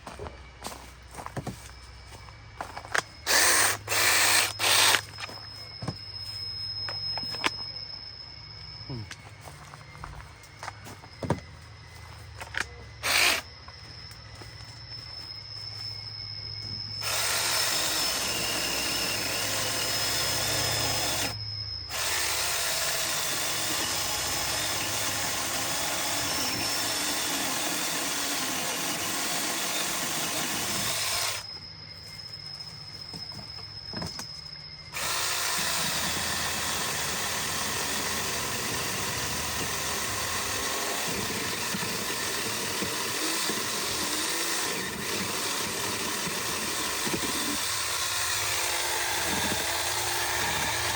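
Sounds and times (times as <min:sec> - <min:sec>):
chainsaw cutting branches: 0:17.0 - 0:31.4.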